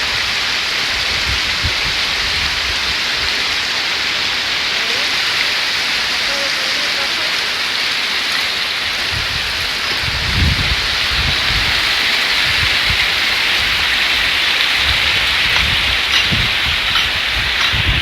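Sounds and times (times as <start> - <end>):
falling water rushing: 0.0 - 18.0.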